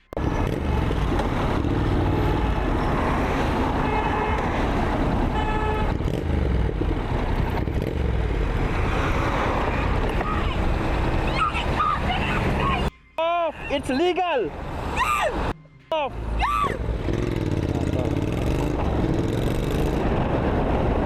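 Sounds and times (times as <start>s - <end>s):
road traffic rumble: 0.0s - 21.0s
car horn toots: 3.8s - 4.6s, 5.3s - 6.0s.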